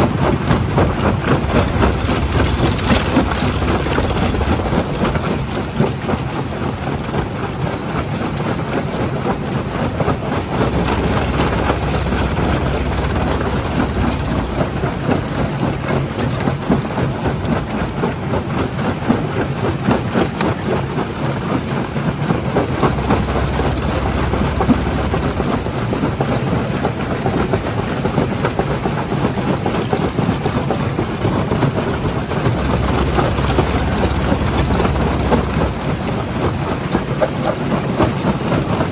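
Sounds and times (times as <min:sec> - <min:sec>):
heavy machinery drone: 0:00.0 - 0:18.6, 0:20.6 - 0:38.9
rock crushing and clattering: 0:00.2 - 0:07.6, 0:10.6 - 0:16.8, 0:22.6 - 0:27.2, 0:31.1 - 0:36.7.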